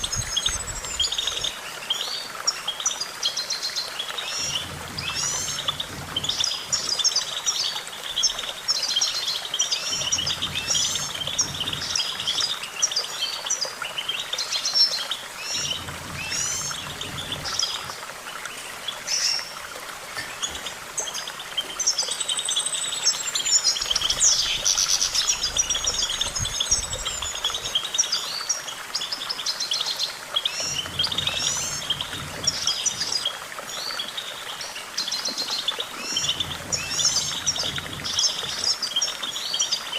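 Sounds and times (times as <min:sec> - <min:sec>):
goldfinch twittering song: 0:00.0 - 0:39.9.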